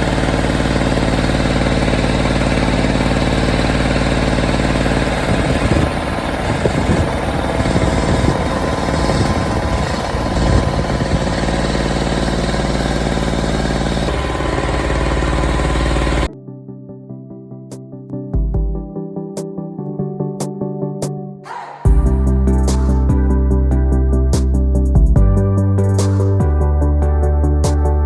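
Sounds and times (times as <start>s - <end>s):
generator engine running: 0.0s - 16.4s, 21.9s - 24.2s.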